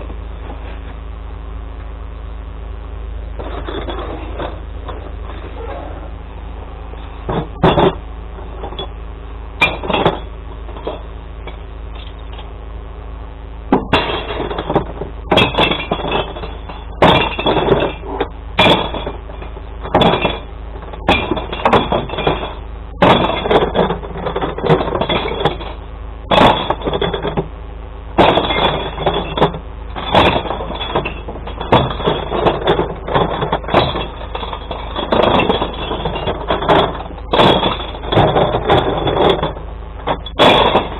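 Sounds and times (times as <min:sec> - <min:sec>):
idling truck hum: 0:00.0 - 0:40.9
glass bottles smashing: 0:07.4 - 0:08.0, 0:09.6 - 0:11.0, 0:13.7 - 0:27.4, 0:28.2 - 0:40.9.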